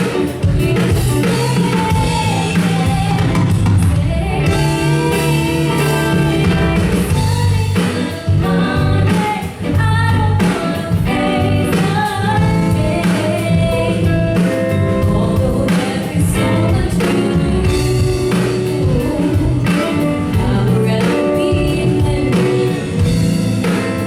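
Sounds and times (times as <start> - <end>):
low bass line: 0.0 - 23.8
instrumental accompaniment: 0.0 - 24.0
person singing pop song: 0.0 - 24.0.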